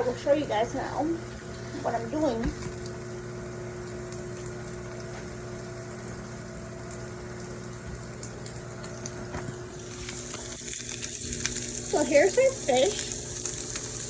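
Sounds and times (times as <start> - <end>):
fish and onions sizzling in a pan: 9.5 - 14.0.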